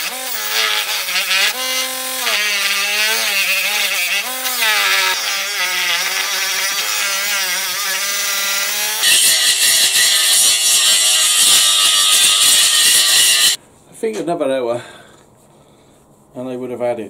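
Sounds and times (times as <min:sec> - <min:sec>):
hand saw cutting metal: 0:00.0 - 0:13.6.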